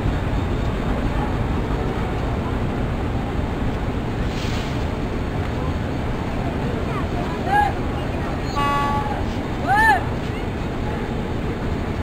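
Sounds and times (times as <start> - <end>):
train coaches rumbling on track: 0.0 - 12.0
faint hiss: 4.2 - 5.6.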